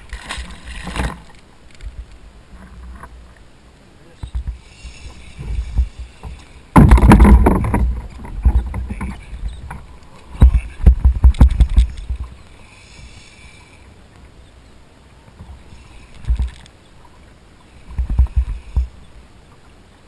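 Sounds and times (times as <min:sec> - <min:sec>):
sharp knocks: 0:05.8 - 0:09.2.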